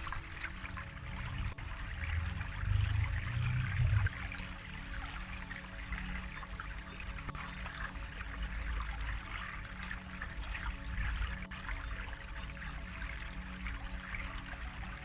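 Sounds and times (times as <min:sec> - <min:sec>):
stream trickling and splashing: 0:00.0 - 0:15.0
low rumble: 0:00.8 - 0:05.2.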